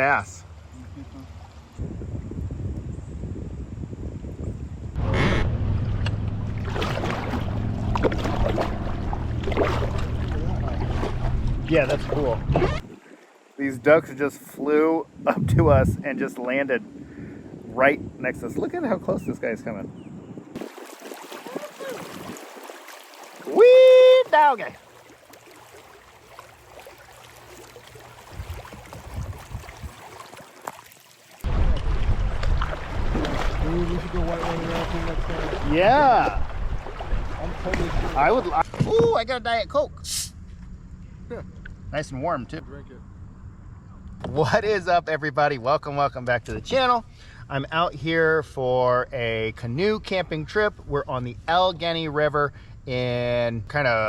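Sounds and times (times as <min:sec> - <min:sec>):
wind noise on microphone: 0:01.6 - 0:13.2, 0:15.0 - 0:20.7, 0:28.3 - 0:30.2, 0:31.4 - 0:39.2
steady low rumble: 0:04.9 - 0:12.8, 0:15.2 - 0:16.2
soft low bumps: 0:05.0 - 0:12.8
ducks splashing down on water: 0:06.5 - 0:11.4, 0:20.6 - 0:23.8, 0:24.4 - 0:35.8.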